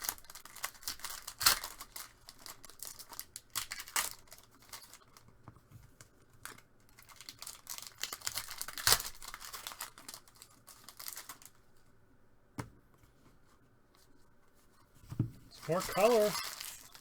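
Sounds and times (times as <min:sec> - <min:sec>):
foil wrappers crinkling and tearing: 0:00.0 - 0:05.3, 0:06.4 - 0:11.7, 0:15.6 - 0:17.0.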